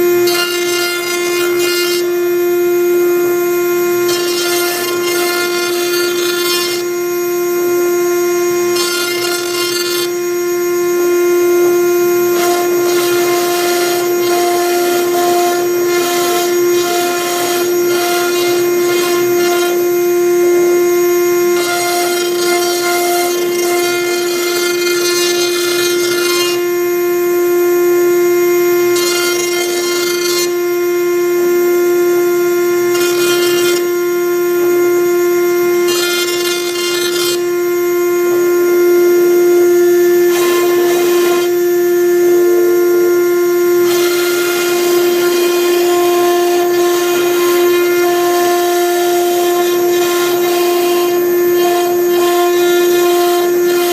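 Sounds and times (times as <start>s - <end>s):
bit rasping through wood: 0.0s - 2.2s, 4.0s - 7.2s, 8.5s - 10.3s, 12.2s - 20.1s, 21.4s - 26.8s, 28.8s - 30.7s, 32.8s - 34.0s, 35.8s - 37.7s, 40.2s - 41.7s, 43.8s - 53.9s
router spindle whine: 0.0s - 53.9s.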